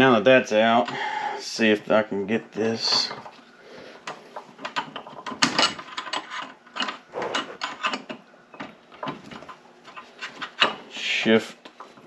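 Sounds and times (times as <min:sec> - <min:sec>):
metal parts clinking and rattling: 0:04.4 - 0:10.8.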